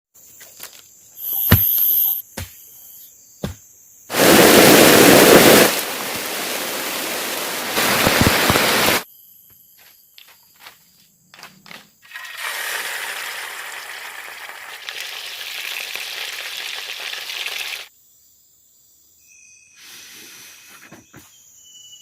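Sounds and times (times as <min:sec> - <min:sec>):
heavy rain pouring: 0:04.1 - 0:09.0.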